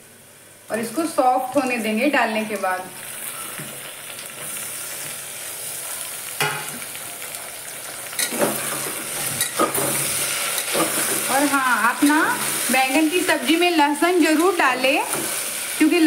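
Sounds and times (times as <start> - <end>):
tomatoes sizzling in hot oil: 0.0 - 16.0.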